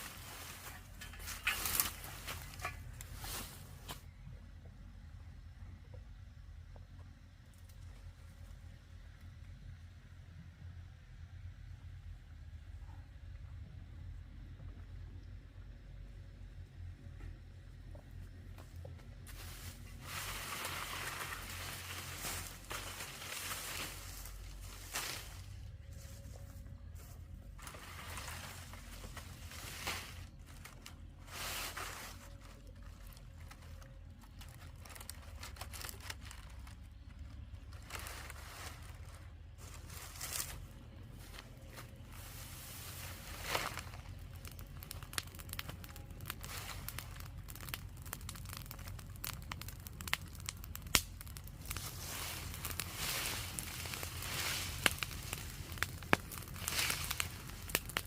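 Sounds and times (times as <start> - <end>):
dry material rustling and tearing: 0.0 - 4.0, 19.3 - 25.7, 27.6 - 49.0, 51.3 - 58.0
low hum: 0.0 - 58.0.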